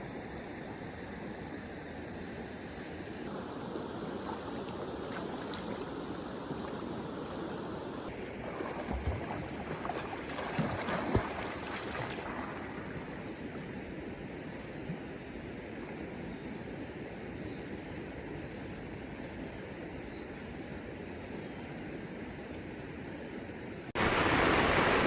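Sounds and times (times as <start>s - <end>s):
rushing water: 3.3s - 13.7s, 24.0s - 25.0s.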